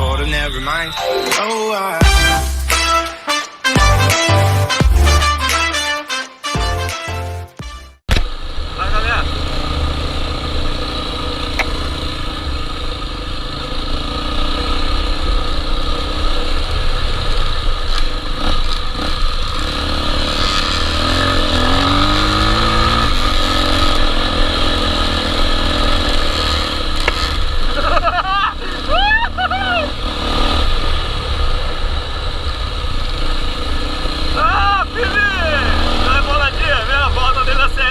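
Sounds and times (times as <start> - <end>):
dirt bike engine running: 8.2 - 37.9.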